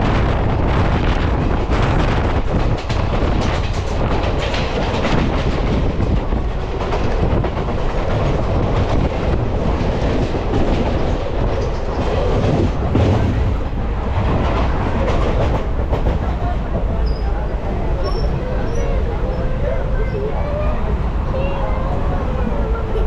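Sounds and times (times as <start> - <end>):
wheels clacking over rail joints: 0.0 - 17.4
train wheels rumbling on rail: 0.0 - 23.0.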